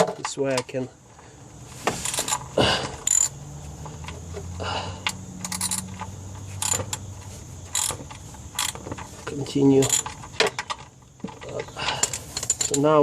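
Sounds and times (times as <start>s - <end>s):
socket wrench clinking metal: 2.0s - 4.3s, 5.0s - 7.1s, 7.7s - 9.1s, 9.7s - 13.0s.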